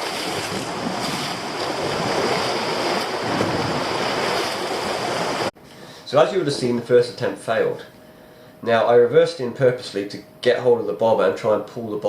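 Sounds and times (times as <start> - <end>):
waves breaking against rocks: 0.0 - 5.5
wind buffeting microphone: 0.0 - 5.5.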